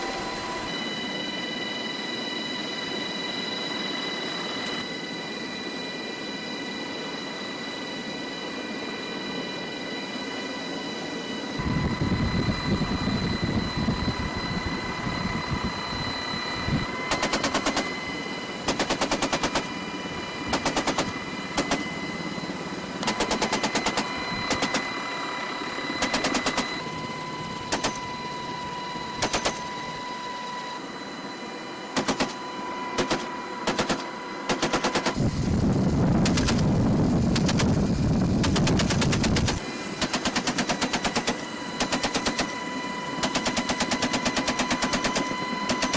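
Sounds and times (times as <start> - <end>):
helicopter whine and rotor: 0.0 - 45.9
machine gun bursts: 18.7 - 19.6, 23.0 - 24.0, 32.0 - 32.4, 33.0 - 35.2, 43.2 - 45.9.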